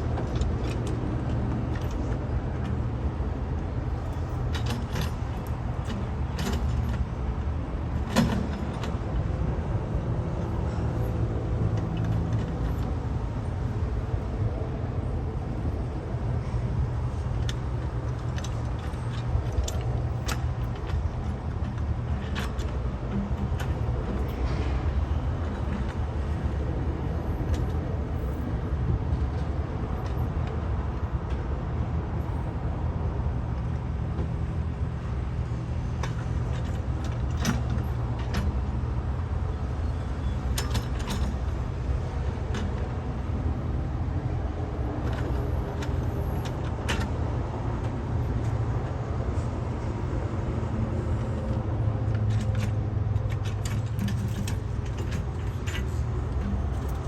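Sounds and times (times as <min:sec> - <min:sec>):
diesel engine running: 0:34.4 - 0:57.0.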